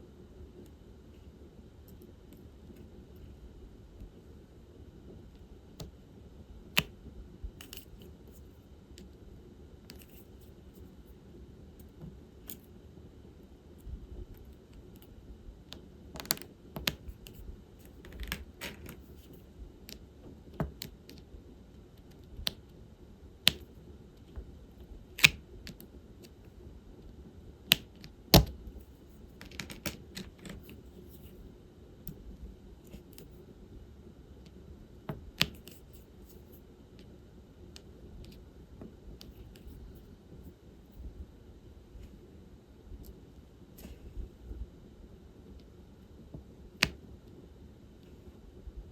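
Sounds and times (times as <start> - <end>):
small clicks and taps: 15.7 - 20.0, 20.6 - 21.3, 23.4 - 24.5, 34.4 - 37.1, 46.3 - 47.0.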